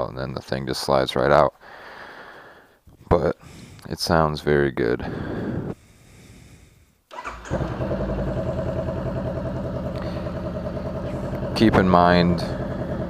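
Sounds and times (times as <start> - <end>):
motorcycle engine idling: 7.2 - 13.0.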